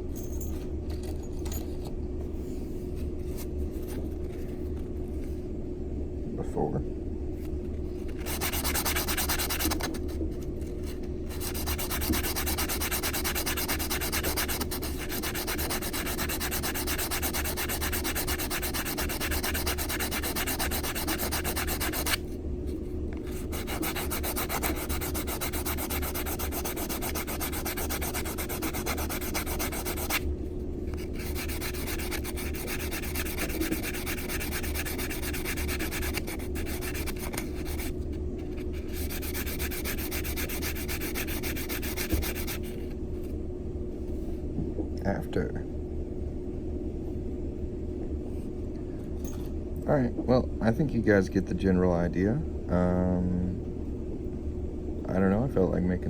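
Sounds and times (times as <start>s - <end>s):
metal ring scratching on file board: 8.2s - 10.0s, 11.3s - 22.2s, 23.3s - 30.2s, 30.9s - 38.0s, 38.7s - 42.7s.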